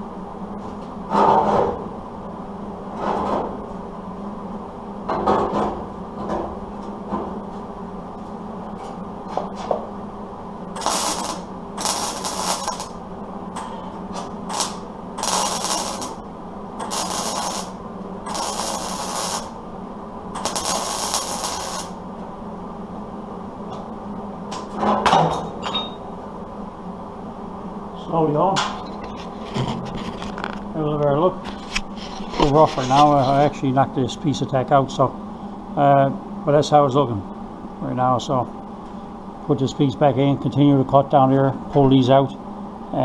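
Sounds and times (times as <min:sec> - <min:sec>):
steady low hum: 0:00.0 - 0:43.0
welding bursts: 0:10.7 - 0:13.0, 0:14.2 - 0:16.2, 0:16.8 - 0:19.6, 0:20.4 - 0:22.0.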